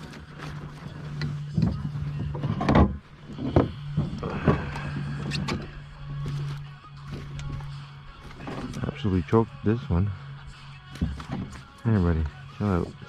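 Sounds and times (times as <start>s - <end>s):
low mechanical hum: 0.0s - 13.0s
knocks and thumps in kayak: 1.5s - 5.6s.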